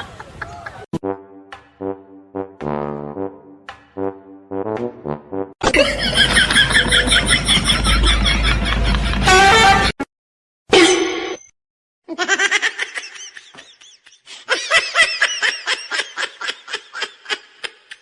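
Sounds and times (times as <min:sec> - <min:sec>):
person laughing hard: 0:05.7 - 0:09.3, 0:12.1 - 0:18.0.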